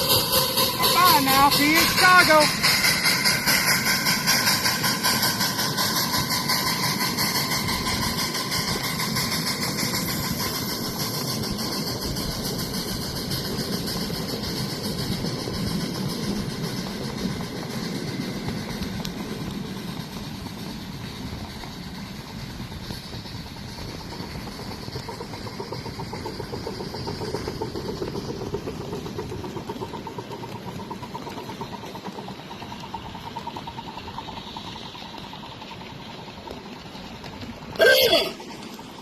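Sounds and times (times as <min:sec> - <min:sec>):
miniature locomotive running: 0:00.0 - 0:39.0.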